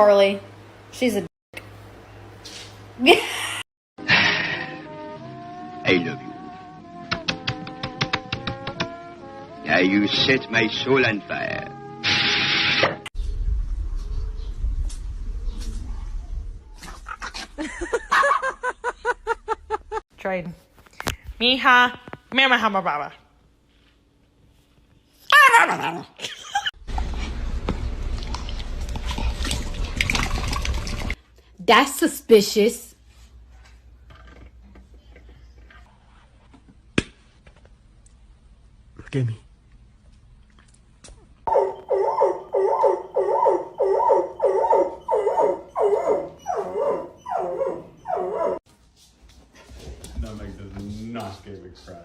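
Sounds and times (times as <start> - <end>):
low rumble: 13.2 - 16.8
dog yelping: 41.5 - 48.6.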